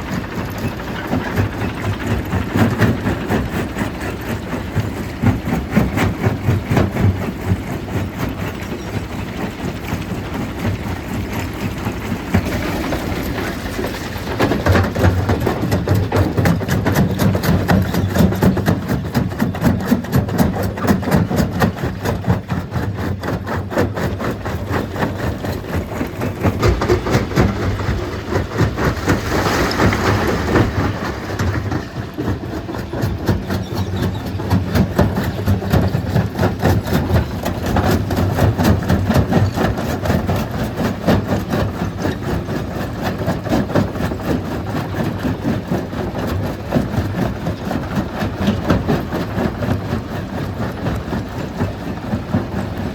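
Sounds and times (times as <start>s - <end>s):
stone crusher clattering: 0.0s - 40.7s.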